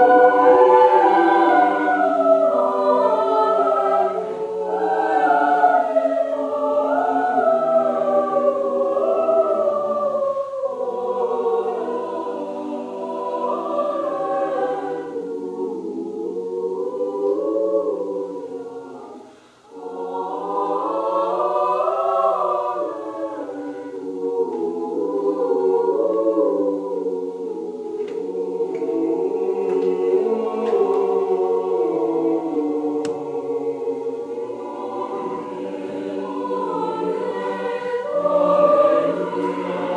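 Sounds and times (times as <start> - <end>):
mixed choir singing: 0.0 - 39.9.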